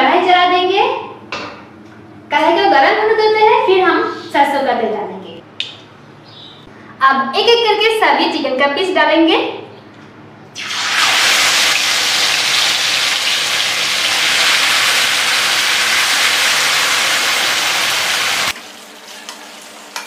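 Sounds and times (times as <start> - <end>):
chicken frying in hot oil: 10.6 - 20.0.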